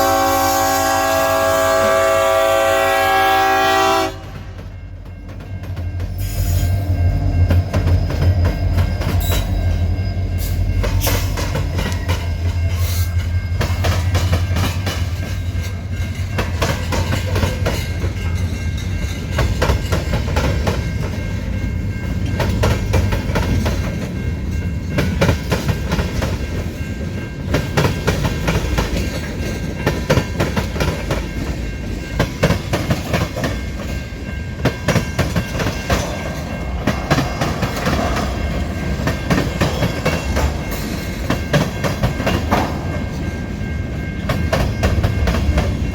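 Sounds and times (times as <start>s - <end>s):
wheels clacking over rail joints: 4.2s - 45.9s.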